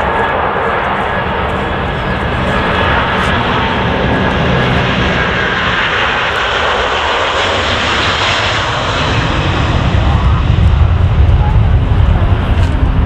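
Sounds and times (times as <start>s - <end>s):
jet engines running loudly: 0.0s - 13.0s.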